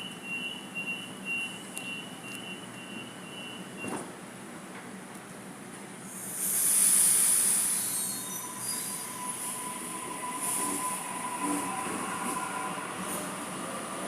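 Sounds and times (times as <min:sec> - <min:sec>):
train wheels squealing on rails: 0:06.1 - 0:14.0.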